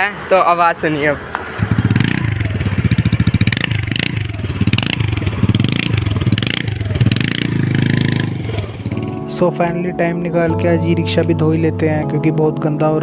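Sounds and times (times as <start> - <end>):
scooter engine revving loudly: 1.5 - 9.2.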